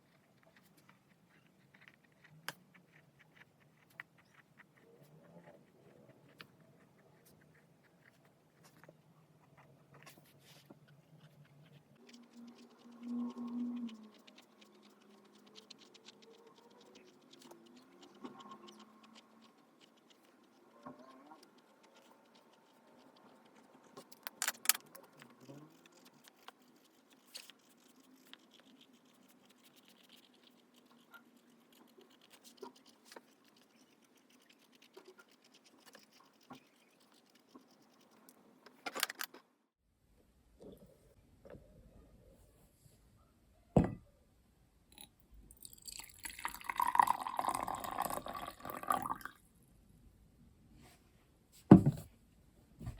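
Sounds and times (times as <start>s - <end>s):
pen scratching on paper: 0.0s - 38.3s.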